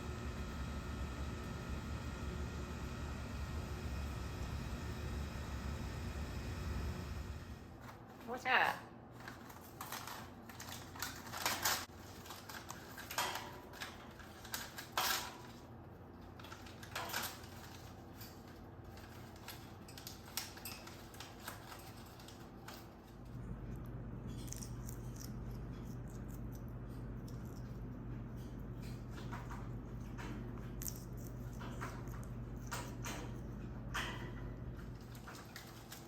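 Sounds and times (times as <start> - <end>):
steady low hum: 0.0 - 13.0, 21.5 - 36.0
clinks and knocks of small objects: 30.6 - 33.3.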